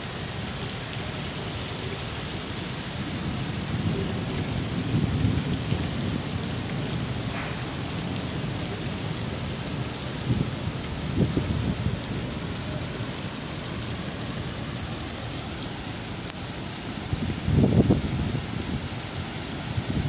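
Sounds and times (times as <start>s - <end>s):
rain splashing into water: 0.0s - 20.0s.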